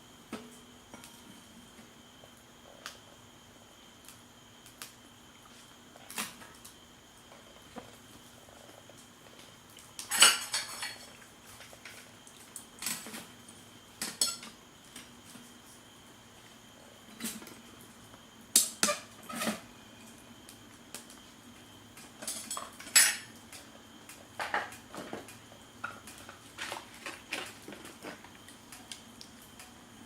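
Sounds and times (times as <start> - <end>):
cutlery and dishes clinking: 22.2 - 23.3.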